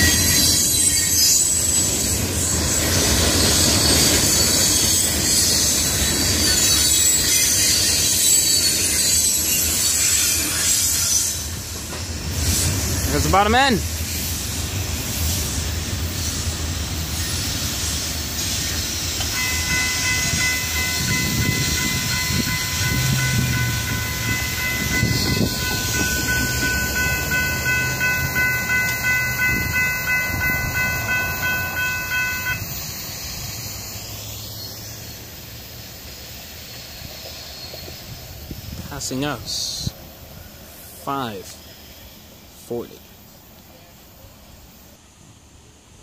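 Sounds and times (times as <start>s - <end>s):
train wheels clattering on rails: 0.0s - 33.4s
steady high ringing tone: 19.0s - 35.6s.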